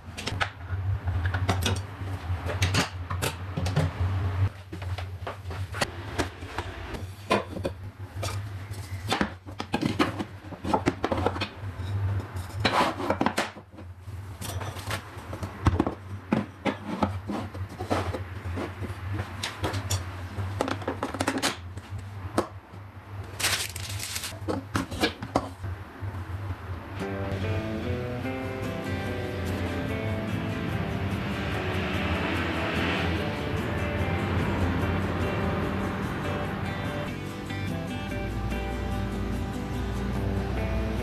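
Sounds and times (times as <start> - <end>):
music: 26.9 - 41.0.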